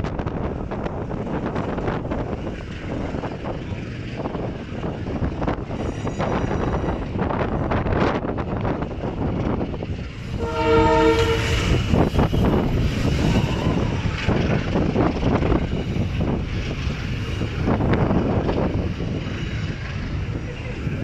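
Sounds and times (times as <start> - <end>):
wind buffeting microphone: 0.0 - 21.0
train horn blast: 10.2 - 12.0.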